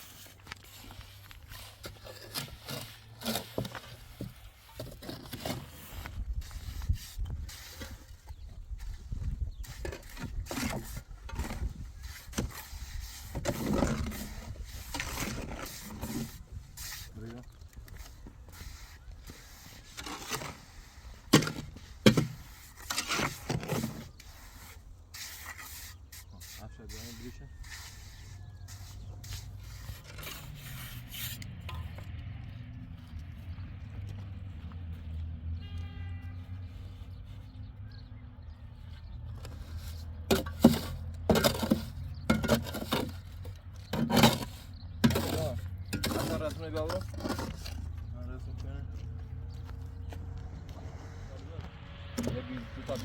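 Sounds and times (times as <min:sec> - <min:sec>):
scraping and rubbing: 0:00.0 - 0:32.1, 0:39.3 - 0:53.0.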